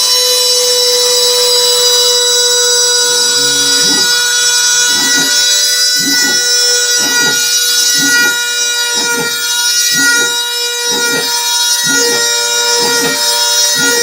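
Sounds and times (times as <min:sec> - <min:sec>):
milling machine spindle whine: 0:00.0 - 0:14.0
rushing cutting noise: 0:02.8 - 0:14.0.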